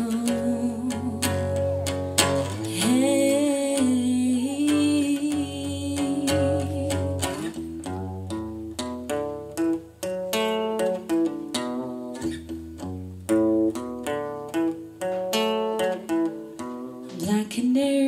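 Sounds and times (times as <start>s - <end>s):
person singing: 0.0s - 7.6s, 17.0s - 18.0s
acoustic guitar picking: 0.0s - 17.8s.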